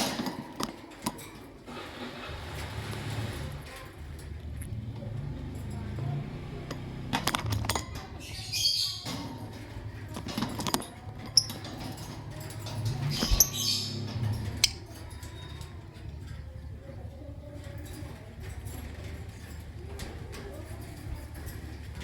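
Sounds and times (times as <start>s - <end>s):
birds chirping: 7.8s - 10.4s, 11.1s - 15.6s
birds flapping wings: 9.7s - 14.6s.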